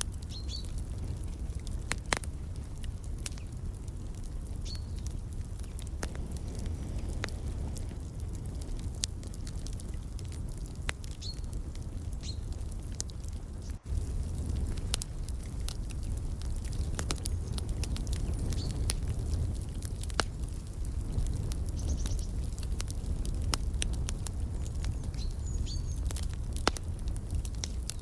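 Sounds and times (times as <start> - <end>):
wood fire crackling and popping: 0.0 - 28.0.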